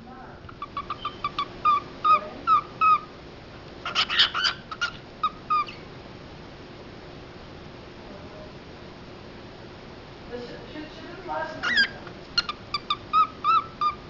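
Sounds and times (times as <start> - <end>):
cockatiel chirping: 0.5 - 3.1, 3.8 - 5.9, 11.6 - 14.0.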